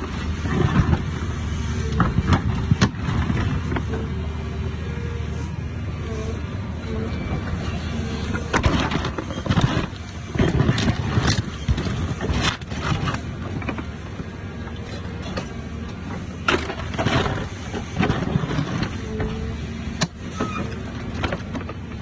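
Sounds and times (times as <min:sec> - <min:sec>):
excavator diesel engine: 0:00.0 - 0:22.0
rock cracking and scraping: 0:08.5 - 0:13.9.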